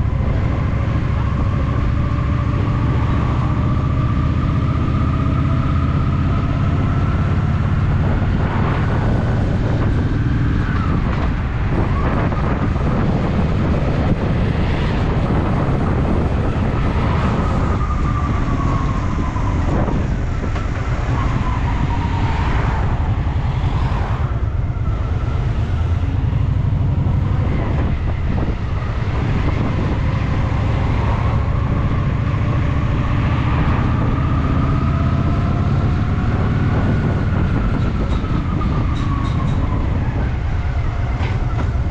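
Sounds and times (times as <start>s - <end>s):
road and wind noise: 0.0s - 41.9s.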